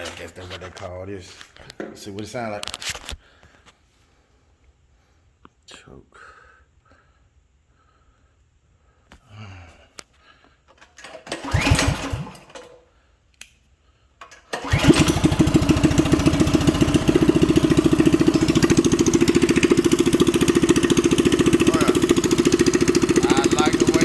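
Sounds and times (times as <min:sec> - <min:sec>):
engine pull-start: 0:10.7 - 0:12.9, 0:14.2 - 0:24.0
small engine running: 0:11.3 - 0:12.6, 0:14.6 - 0:24.0.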